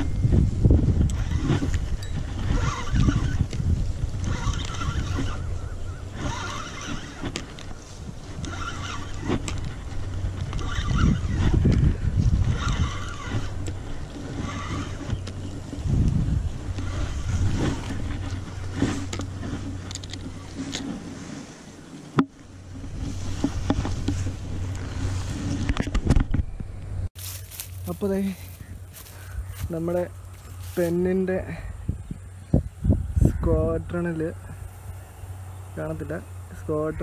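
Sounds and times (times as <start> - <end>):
microphone handling noise: 0.0 - 35.1
low rumbling wind: 0.0 - 37.0
spinning reel being cranked: 1.0 - 7.7, 8.3 - 15.9.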